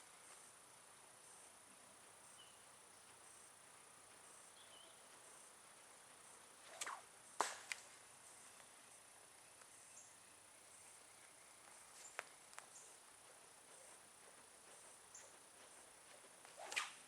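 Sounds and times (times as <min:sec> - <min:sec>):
faint insect buzz: 0:00.0 - 0:17.0
sling swish: 0:06.6 - 0:07.8, 0:15.7 - 0:17.0
sharp crack: 0:06.6 - 0:07.9, 0:16.6 - 0:17.0.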